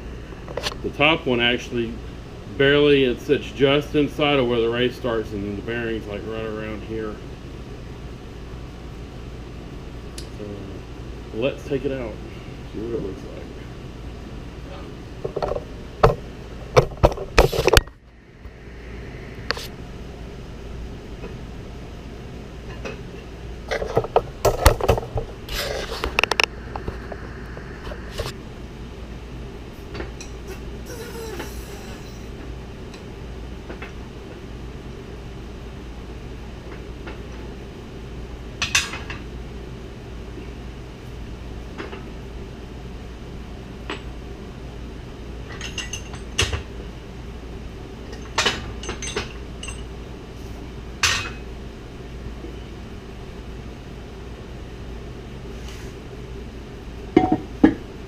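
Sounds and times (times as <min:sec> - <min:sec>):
low hum: 0:12.0 - 0:34.4.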